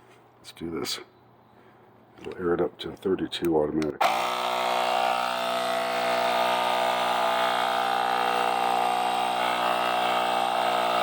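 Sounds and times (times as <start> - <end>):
electric tire inflator running: 4.0 - 11.0.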